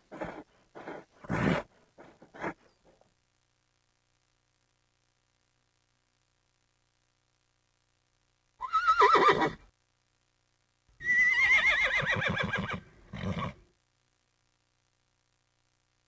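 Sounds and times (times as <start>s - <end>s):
horse whinnying: 8.6s - 9.6s, 11.0s - 13.6s.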